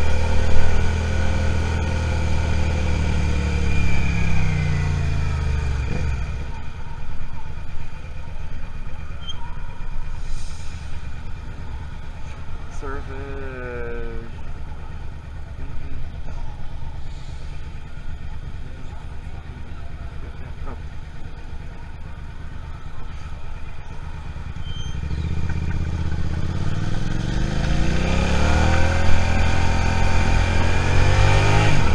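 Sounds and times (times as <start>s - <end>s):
motorcycle engine accelerating: 0.0s - 31.9s.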